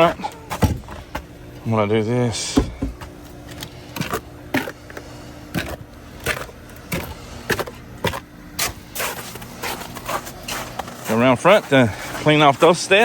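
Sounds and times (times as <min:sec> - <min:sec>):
footsteps on icy ground: 0:02.6 - 0:13.0.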